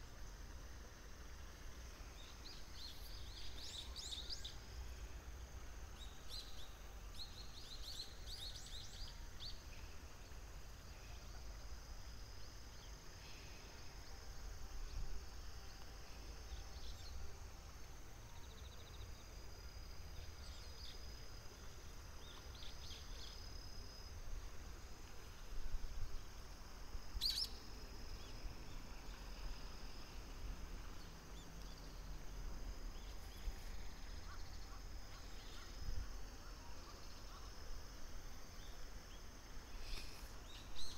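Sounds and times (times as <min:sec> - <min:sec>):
bird singing: 0:02.2 - 0:05.0, 0:05.9 - 0:11.4, 0:27.2 - 0:29.2, 0:32.9 - 0:37.6, 0:39.9 - 0:40.9.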